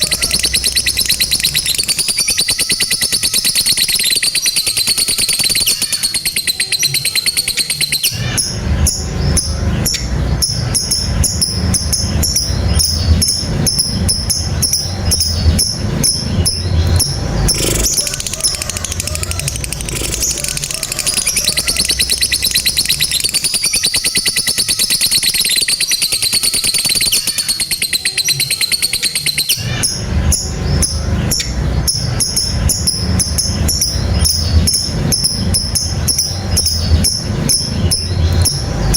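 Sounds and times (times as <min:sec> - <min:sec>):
lovebird rattling trill: 0:00.0 - 0:08.2, 0:10.4 - 0:30.0
low rumble: 0:08.2 - 0:23.5, 0:29.6 - 0:38.9.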